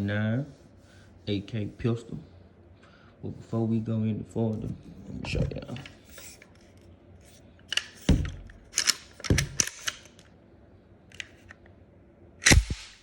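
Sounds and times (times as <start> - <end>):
metallic clicks of pistol action: 7.7 - 10.2.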